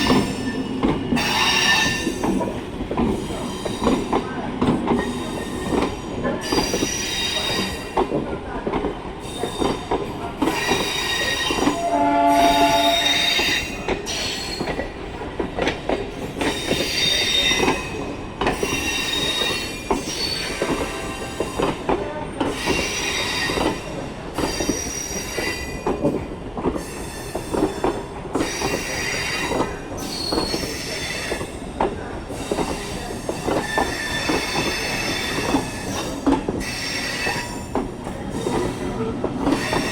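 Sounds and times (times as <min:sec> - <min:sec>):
train wheels squealing: 0:00.0 - 0:04.4, 0:05.0 - 0:08.0, 0:09.2 - 0:15.0, 0:16.2 - 0:21.7, 0:22.4 - 0:26.1, 0:26.8 - 0:31.7, 0:32.3 - 0:39.9
train horn blast: 0:11.5 - 0:13.7.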